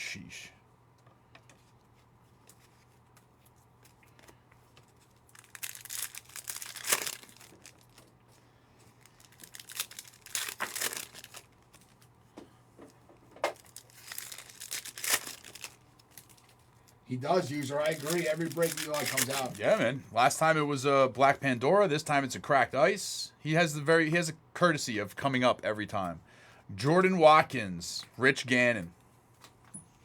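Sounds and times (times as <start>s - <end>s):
foil wrappers tearing and crinkling: 4.9s - 8.1s, 9.0s - 12.0s, 13.5s - 16.6s, 17.3s - 19.8s.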